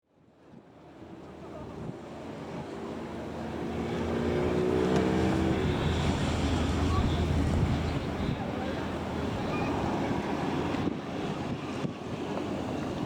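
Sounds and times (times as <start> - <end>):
water noise: 0.0 - 13.0
wind: 0.0 - 13.0
boat engine running: 1.1 - 13.0.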